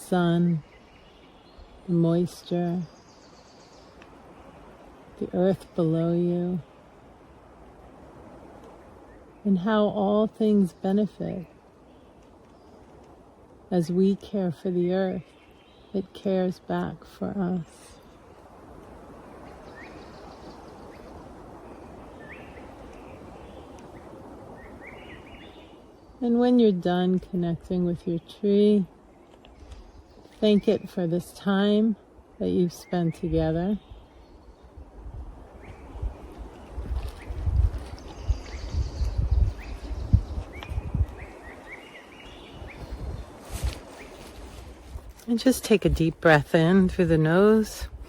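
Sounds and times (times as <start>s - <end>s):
small birds chirping: 0.0s - 7.0s, 8.7s - 48.0s
wind buffeting microphone: 0.0s - 48.0s.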